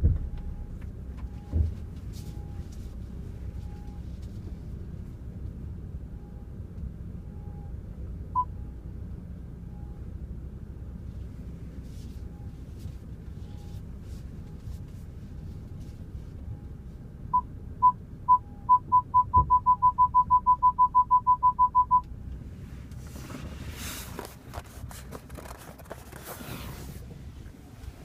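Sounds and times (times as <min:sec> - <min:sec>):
electronic beeps: 0:17.4 - 0:22.0.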